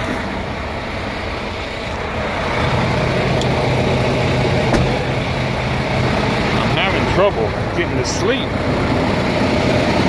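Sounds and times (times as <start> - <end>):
truck engines idling: 0.0 - 10.0.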